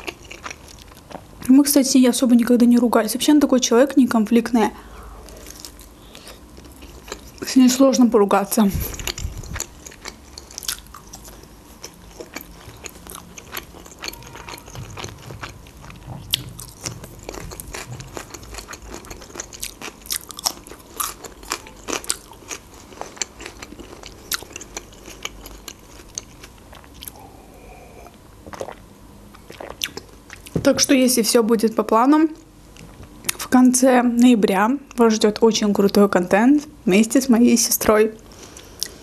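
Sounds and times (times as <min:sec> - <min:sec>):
crunchy chewing: 0:00.0 - 0:01.2, 0:05.2 - 0:07.6, 0:08.7 - 0:30.5.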